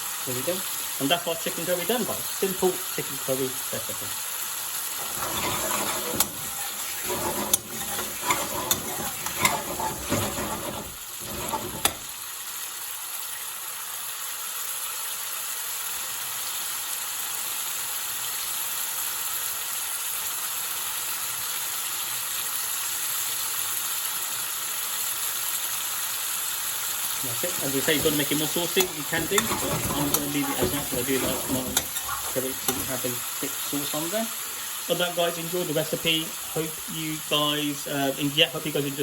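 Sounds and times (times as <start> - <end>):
curry sizzling in a pan: 0.0 - 39.0
spoon scraping against pan: 5.0 - 12.2, 27.3 - 34.7.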